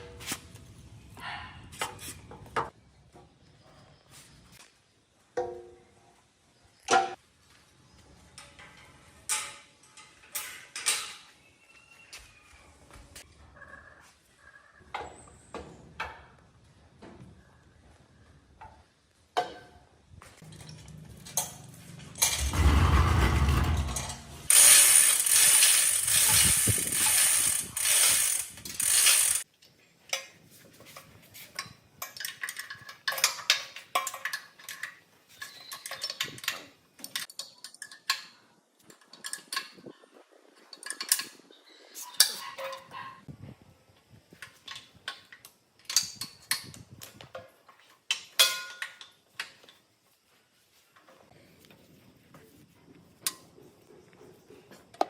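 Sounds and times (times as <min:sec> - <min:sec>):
metallic clicks of tools: 0:31.5 - 0:39.9.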